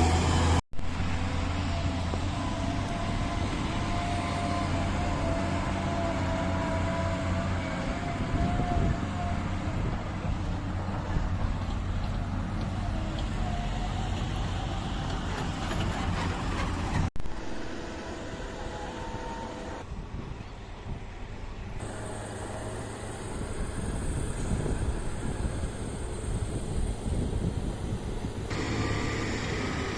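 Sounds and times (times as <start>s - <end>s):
diesel engine running: 0.0s - 19.9s, 21.7s - 29.9s.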